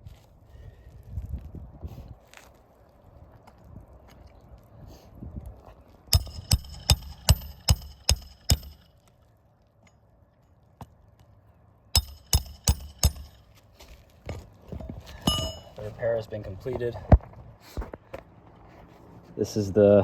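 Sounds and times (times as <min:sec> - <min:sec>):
hammer striking metal: 0:06.1 - 0:08.9, 0:12.0 - 0:13.5, 0:15.3 - 0:15.8.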